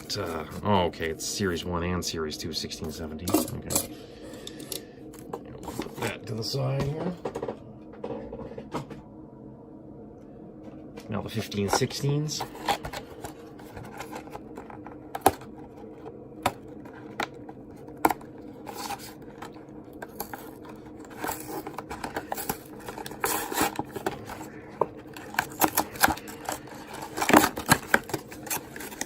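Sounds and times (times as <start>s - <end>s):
faint steady hum: 0.0s - 29.0s
packaging rustling and crinkling: 11.2s - 29.0s
packaging clicks and taps: 12.5s - 29.0s.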